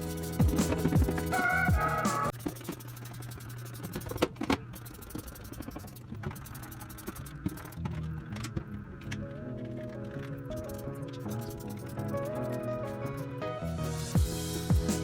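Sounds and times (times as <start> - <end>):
quiet background music: 6.6 - 15.0.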